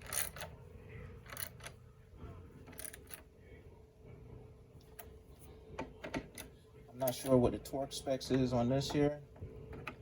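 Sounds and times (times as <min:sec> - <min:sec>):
hand ratchet clicks: 0:00.0 - 0:00.4.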